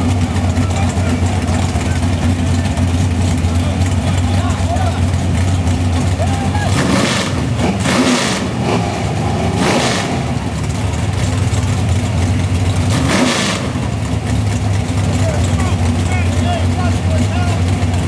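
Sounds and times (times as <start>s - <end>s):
car engines idling: 0.0s - 18.0s
engine revving blips: 6.2s - 10.8s, 12.7s - 14.2s.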